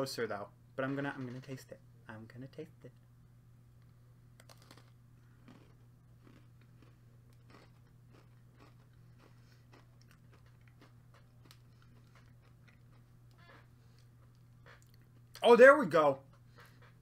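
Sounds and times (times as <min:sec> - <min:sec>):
low steady hum: 0:00.0 - 0:17.0
faint cookie chewing: 0:03.8 - 0:15.4, 0:16.3 - 0:17.0.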